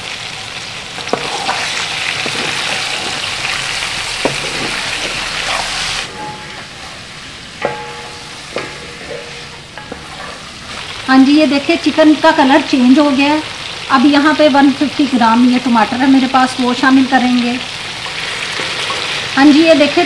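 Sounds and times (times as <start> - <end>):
chicken sizzling in pot: 0.0 - 20.0
wooden spoon knocking pot: 1.0 - 3.3, 7.6 - 10.8.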